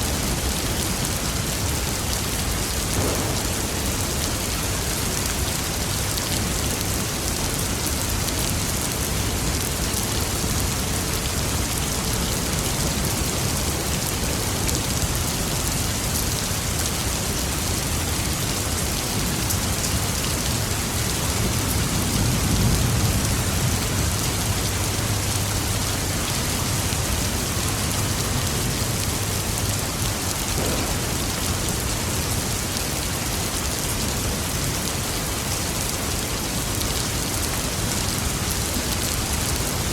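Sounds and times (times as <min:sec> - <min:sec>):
heavy rain falling: 0:00.0 - 0:39.9
distant thunder rumble: 0:02.8 - 0:04.6, 0:30.6 - 0:31.9.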